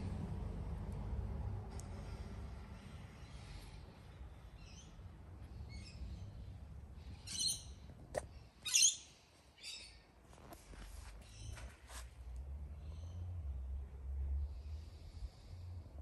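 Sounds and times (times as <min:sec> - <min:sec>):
low steady rumble: 0:00.0 - 0:08.5
birds chirping: 0:03.0 - 0:07.9.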